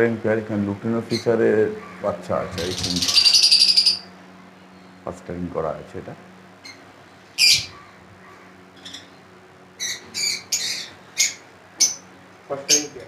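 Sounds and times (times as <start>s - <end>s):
lovebirds squawking: 1.0s - 4.1s, 6.6s - 13.0s.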